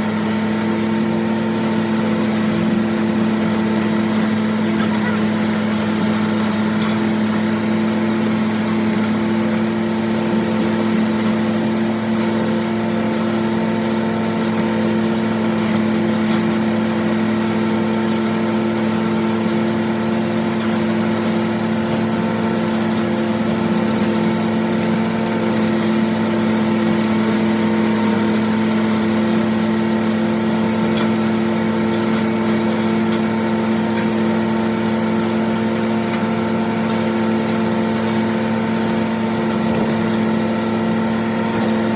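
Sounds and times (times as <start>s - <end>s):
diesel tractor engine running: 0.0s - 41.9s
hammermill grinding corn: 0.0s - 41.9s.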